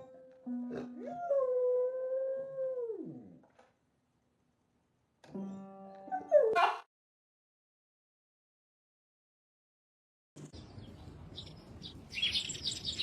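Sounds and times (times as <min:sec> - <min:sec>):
plucked guitar notes: 0:00.0 - 0:01.3, 0:05.3 - 0:06.3.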